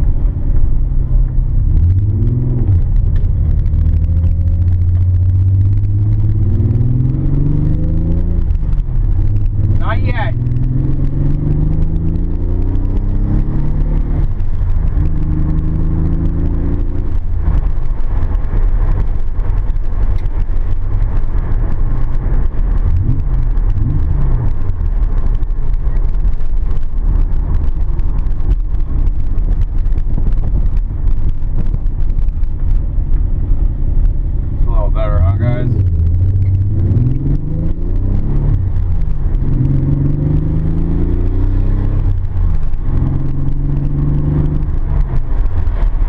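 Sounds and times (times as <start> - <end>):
car engine running: 0.0 - 46.0.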